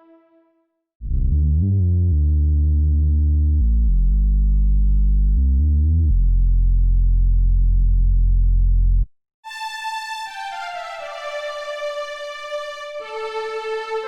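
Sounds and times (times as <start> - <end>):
sustained synth bass: 1.0 - 9.1.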